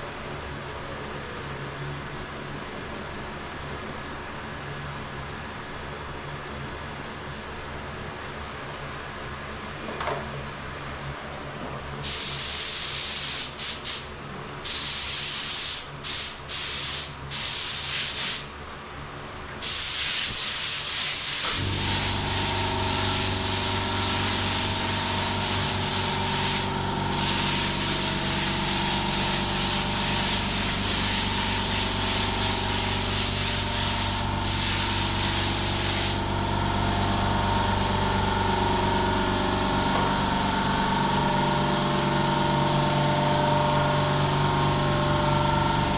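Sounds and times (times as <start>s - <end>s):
paint spray hissing: 12.0s - 18.5s, 19.6s - 36.3s
air compressor motor humming: 19.6s - 45.9s.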